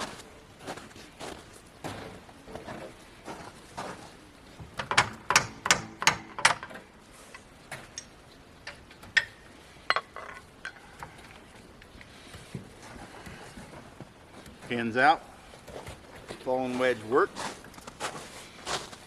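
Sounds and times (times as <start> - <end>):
wedge striking metal pin: 4.8 - 6.7.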